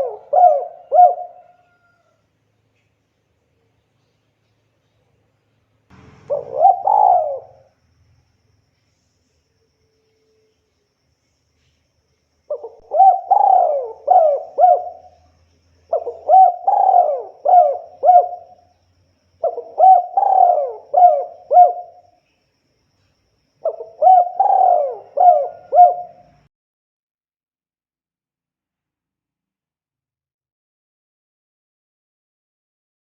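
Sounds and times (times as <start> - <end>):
dove cooing: 0.0 - 2.0, 6.1 - 7.7, 12.5 - 15.3, 15.9 - 18.7, 19.4 - 22.1, 23.6 - 26.5.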